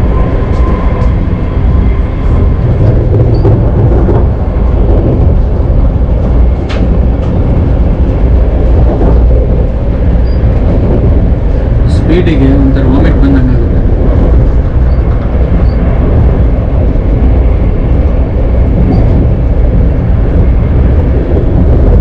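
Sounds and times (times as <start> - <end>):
train interior rumble: 0.0 - 22.0.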